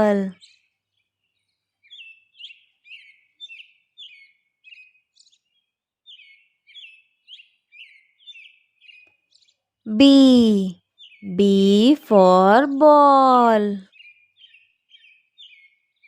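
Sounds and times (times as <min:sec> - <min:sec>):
small bird chirping: 0:00.0 - 0:16.0.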